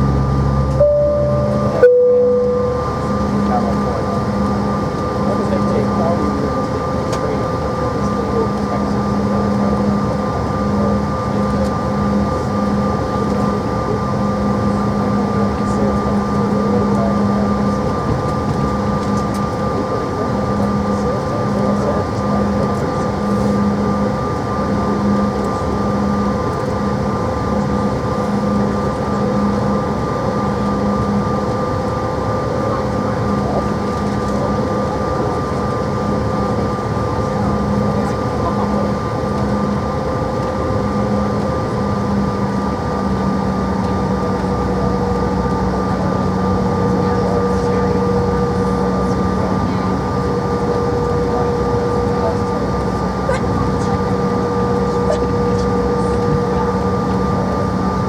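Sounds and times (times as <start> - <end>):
low hum: 0.0 - 4.5
engine whine: 0.0 - 58.0.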